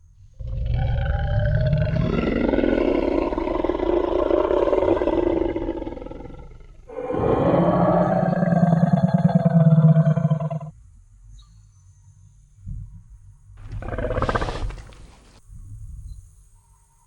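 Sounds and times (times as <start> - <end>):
deep dinosaur roar: 0.3 - 10.7, 13.6 - 15.4.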